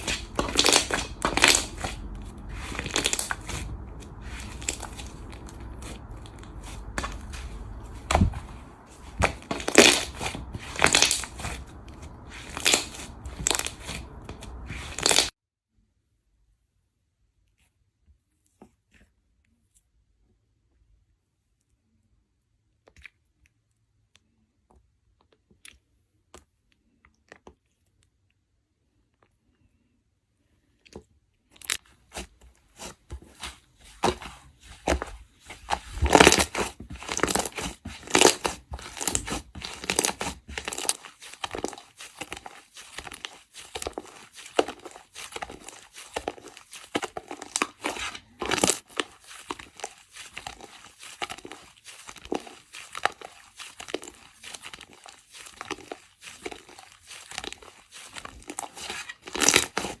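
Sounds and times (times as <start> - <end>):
crisp material crunching and tearing: 0.0 - 15.3, 32.8 - 60.0.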